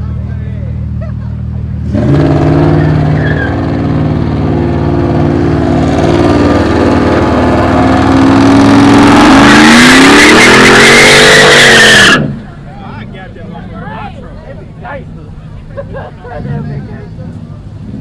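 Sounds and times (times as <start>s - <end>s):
car engine idling: 0.0s - 9.8s, 11.8s - 18.0s
nearby car engine revving: 1.3s - 12.6s.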